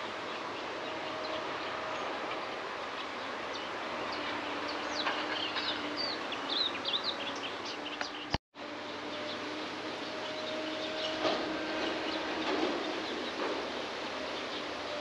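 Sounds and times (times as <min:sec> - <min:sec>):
birds chirping: 0:00.0 - 0:08.4, 0:09.0 - 0:15.0
steady background noise: 0:00.0 - 0:15.0.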